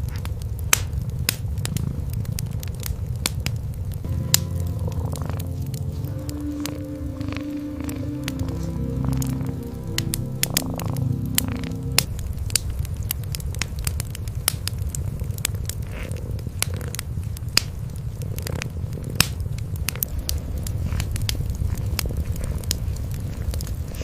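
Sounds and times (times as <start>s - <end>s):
wood fire crackling and popping: 0.0s - 24.0s
cats purring: 1.5s - 3.2s, 4.4s - 12.2s, 14.6s - 24.0s.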